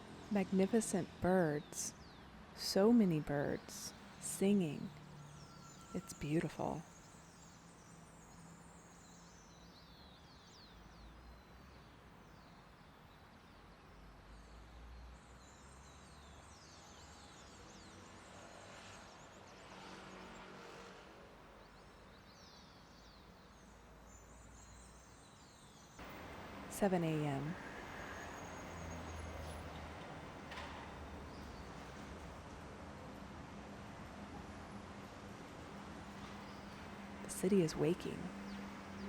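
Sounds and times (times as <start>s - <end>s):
low city rumble: 0.0s - 11.1s, 26.0s - 39.0s.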